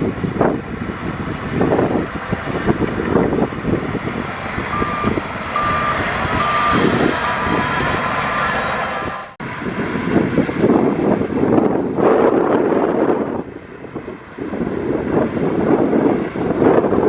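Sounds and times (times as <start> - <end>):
heavy machinery engine running: 0.0 - 17.0
reversing alarm beeps: 4.7 - 7.8.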